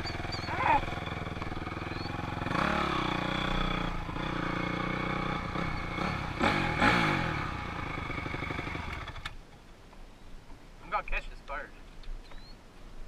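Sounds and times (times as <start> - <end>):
dirt bike engine revving: 0.0 - 9.4.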